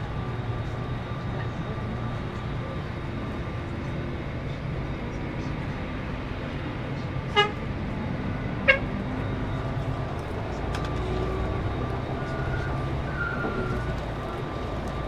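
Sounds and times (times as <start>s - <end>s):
coach engine and tyres drone: 0.0s - 15.0s
vehicle horn toots: 7.3s - 7.6s, 8.6s - 8.9s.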